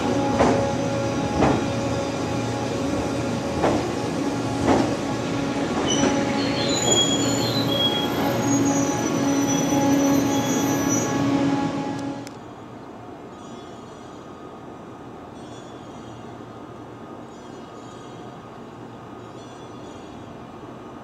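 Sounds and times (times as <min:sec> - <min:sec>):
train hum: 0:00.0 - 0:21.0
wheels squealing on rails: 0:05.6 - 0:12.0.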